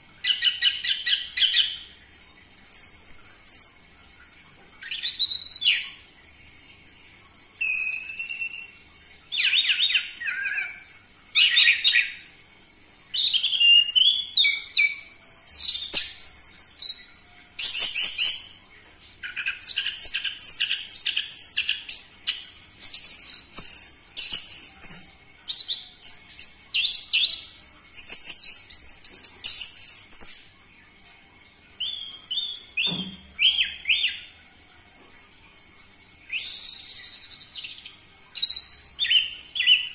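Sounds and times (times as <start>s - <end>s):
bird singing whistled phrases: 4.8s - 6.0s, 7.6s - 12.2s, 13.1s - 17.0s, 31.8s - 34.3s, 36.3s - 37.8s, 38.4s - 39.9s.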